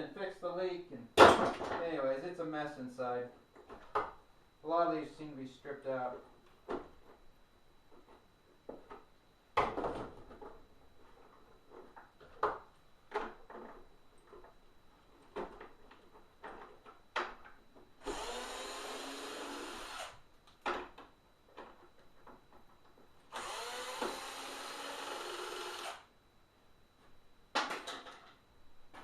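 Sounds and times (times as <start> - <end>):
power driver running: 18.0 - 20.2, 23.3 - 26.1
plastic parts knocking and clattering: 20.6 - 23.1, 27.5 - 29.0.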